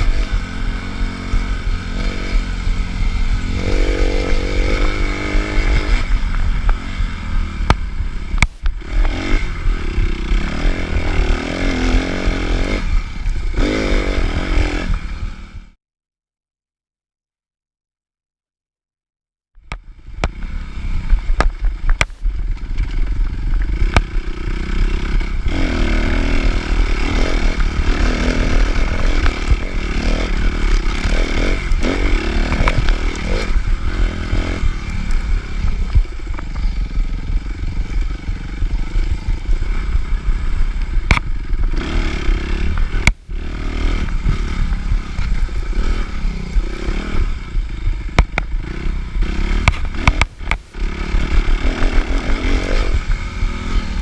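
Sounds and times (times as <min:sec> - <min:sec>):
dirt bike engine revving: 0:00.0 - 0:15.8, 0:19.8 - 0:54.0.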